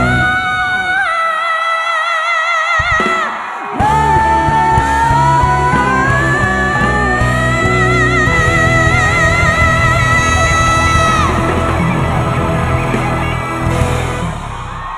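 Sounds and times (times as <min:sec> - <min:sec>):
woman singing high notes with vibrato: 0:00.0 - 0:11.8
live rock band: 0:00.0 - 0:14.9.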